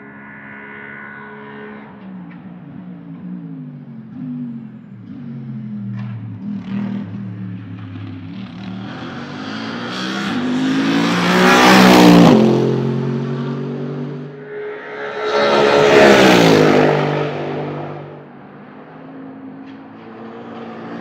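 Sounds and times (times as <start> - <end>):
race car engine passing by: 8.4 - 19.2.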